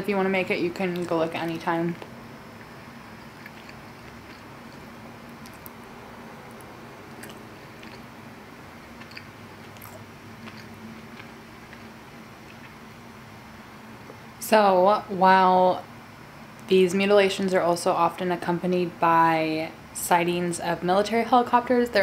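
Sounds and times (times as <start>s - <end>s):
close-miked chewing: 0.7s - 12.9s
wet mouth clicks: 2.6s - 5.8s, 6.5s - 8.1s, 9.0s - 12.8s.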